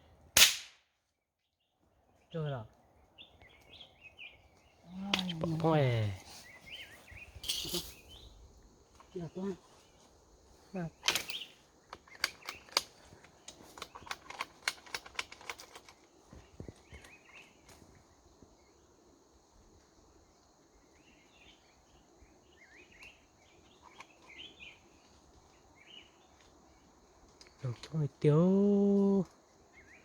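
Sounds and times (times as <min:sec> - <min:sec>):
small birds chirping: 0:01.4 - 0:30.0
steady high hiss: 0:04.2 - 0:12.1, 0:16.0 - 0:23.7
sharp clicks: 0:11.0 - 0:16.0.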